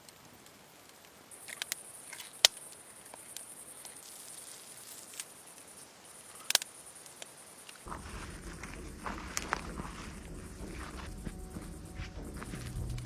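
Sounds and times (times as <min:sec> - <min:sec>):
sharp clicks or snaps: 0:06.4 - 0:07.8
high-pitched buzz: 0:07.9 - 0:13.0.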